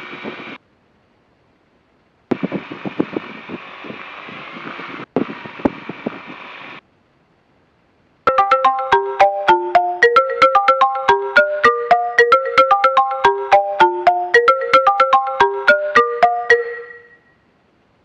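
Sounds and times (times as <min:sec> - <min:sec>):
marimba ringtone tune: 0:08.3 - 0:17.2.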